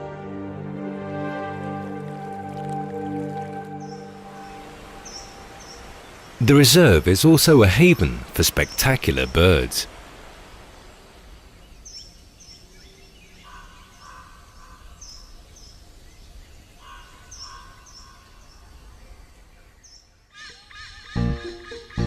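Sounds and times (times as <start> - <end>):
birds chirping: 1.9 - 22.0
low warbling bird call: 2.0 - 6.5.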